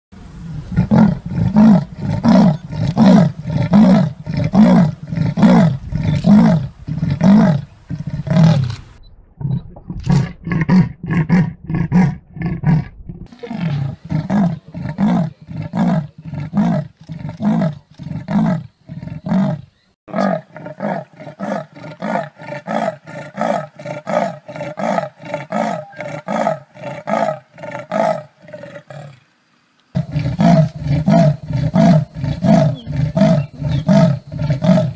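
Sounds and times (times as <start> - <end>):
leopards sawing roar: 0.7 - 8.8, 13.3 - 29.1, 30.0 - 34.9.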